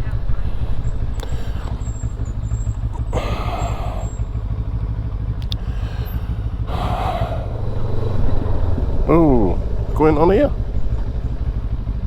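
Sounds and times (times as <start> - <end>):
motorcycle engine running: 0.0 - 12.0
rushing swells of noise: 5.6 - 12.0.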